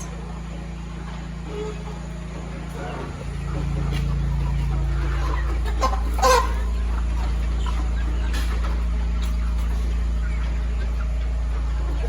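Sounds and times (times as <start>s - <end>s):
chickens clucking: 0.0s - 12.0s
steady low hum: 0.0s - 12.0s
chicken squawk: 2.7s - 12.0s.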